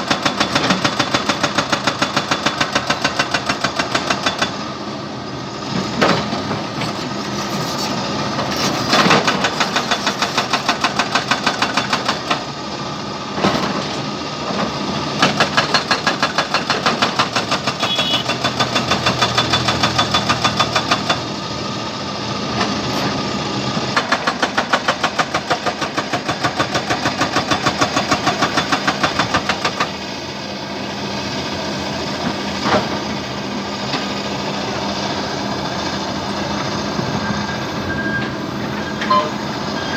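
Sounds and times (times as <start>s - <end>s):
jackhammer hammering: 0.0s - 4.6s, 9.0s - 12.5s, 15.2s - 21.3s, 24.0s - 30.0s.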